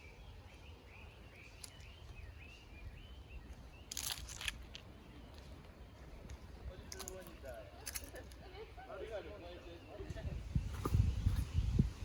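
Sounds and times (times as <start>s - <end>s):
small bird chirping: 0.0s - 8.1s
sharp clicks or crunches: 3.9s - 4.9s.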